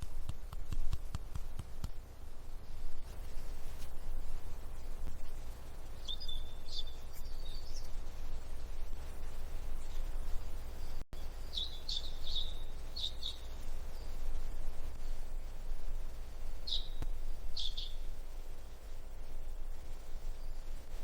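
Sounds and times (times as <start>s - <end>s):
low background rumble: 0.0s - 21.0s
bird chirping: 4.6s - 14.7s, 16.6s - 18.2s.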